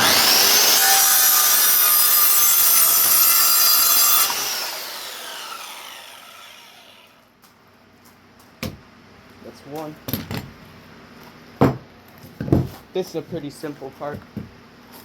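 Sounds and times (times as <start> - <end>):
power saw cutting wood: 0.0 - 7.2.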